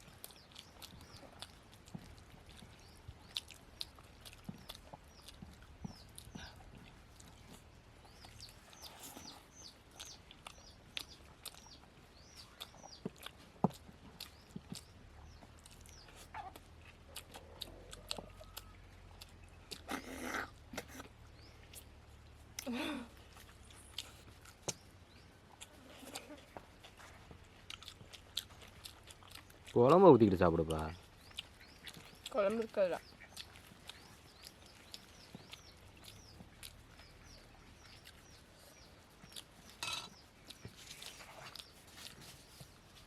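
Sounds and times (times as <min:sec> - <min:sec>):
chewing: 0:00.0 - 0:43.0
lip smacks: 0:23.3 - 0:29.8, 0:33.0 - 0:43.0.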